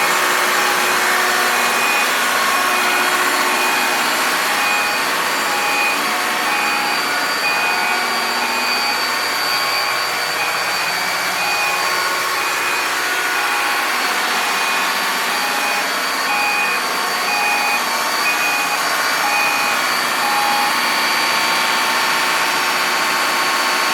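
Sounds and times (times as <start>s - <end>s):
engine room machinery noise: 0.0s - 23.9s
two-tone electronic beep: 1.6s - 20.9s.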